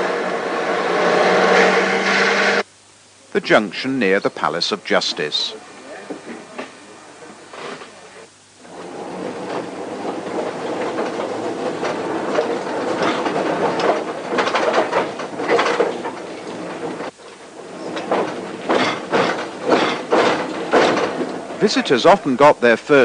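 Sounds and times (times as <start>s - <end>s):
tram wheels clattering on rails: 0.0s - 2.6s, 7.5s - 23.0s.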